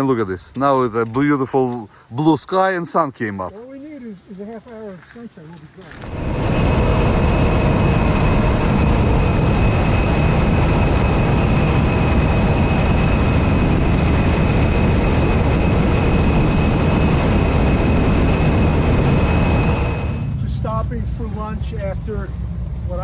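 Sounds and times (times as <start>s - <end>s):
thin steady whine: 5.9s - 23.0s
wind rush on microphone: 5.9s - 23.0s.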